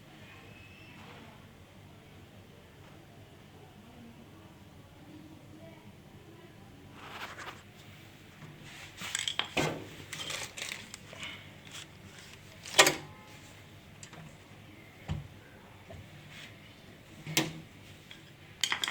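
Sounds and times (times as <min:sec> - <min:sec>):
dishes and utensils clattering: 0:18.6 - 0:18.9.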